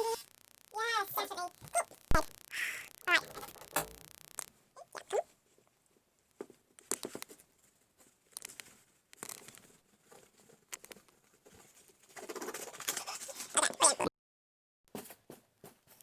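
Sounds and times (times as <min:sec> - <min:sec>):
rustling and light tapping: 0:05.3 - 0:13.4.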